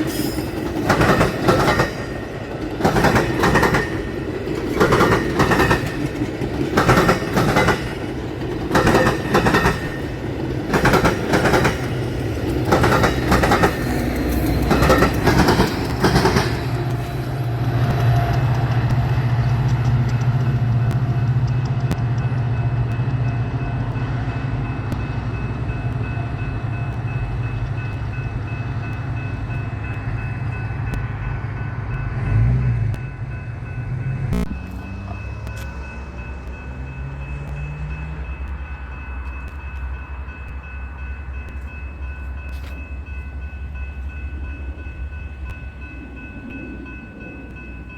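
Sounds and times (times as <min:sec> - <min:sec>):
train wheels clunking over rails: 0:00.0 - 0:23.4
diesel locomotive engine drone: 0:00.0 - 0:47.9.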